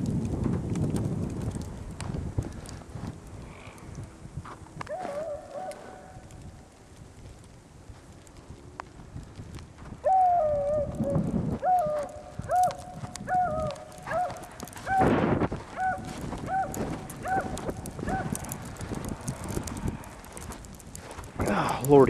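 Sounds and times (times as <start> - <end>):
crunching noises: 0.0 - 22.0
dog barking: 5.0 - 6.1, 13.3 - 15.0, 15.8 - 18.3.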